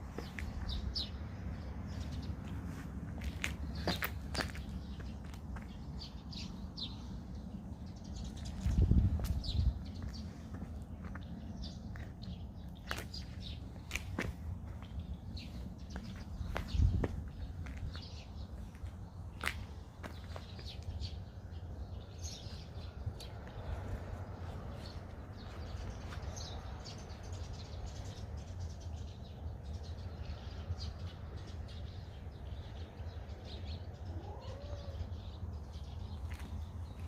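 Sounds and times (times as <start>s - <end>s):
steady low rumble: 0.0s - 20.2s
small birds chirping: 0.0s - 37.0s.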